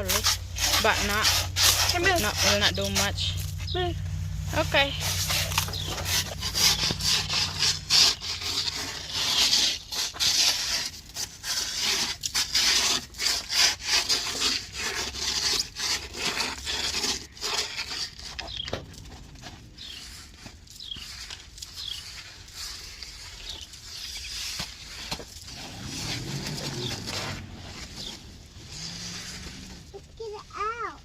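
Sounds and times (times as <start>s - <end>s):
crunching and scraping on ice: 0.0s - 31.0s
low hum: 0.3s - 9.3s.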